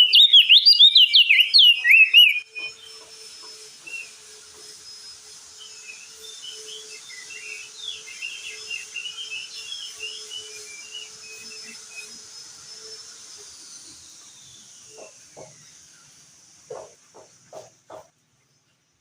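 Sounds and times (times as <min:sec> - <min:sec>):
bird twittering chatter: 0:00.0 - 0:03.0.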